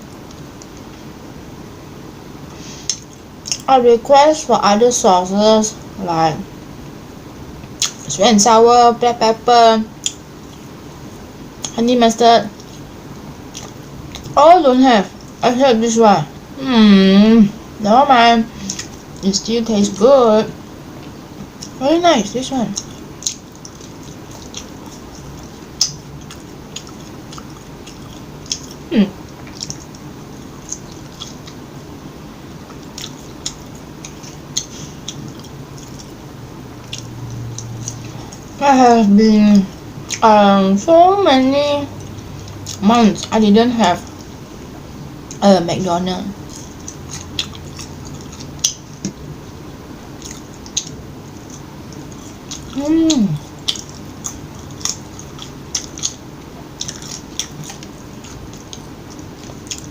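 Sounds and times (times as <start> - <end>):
person chewing food: 2.5 - 3.7, 10.0 - 11.8, 12.5 - 14.4, 18.5 - 19.2, 22.7 - 38.6, 39.7 - 40.2, 41.9 - 43.4, 46.4 - 59.9.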